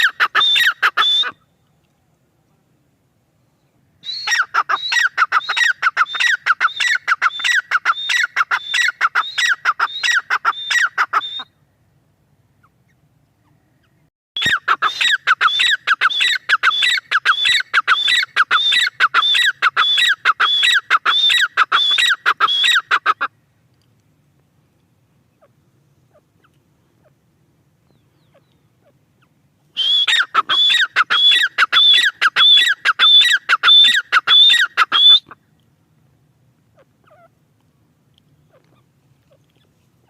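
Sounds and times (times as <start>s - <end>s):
bird calling shrill repeated notes: 0.0s - 1.6s, 4.0s - 11.6s, 14.4s - 23.3s, 27.9s - 35.4s.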